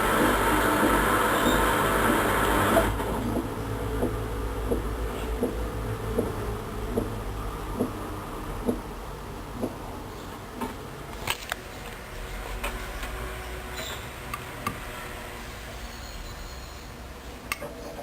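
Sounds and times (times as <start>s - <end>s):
washing machine humming: 0.0s - 11.1s.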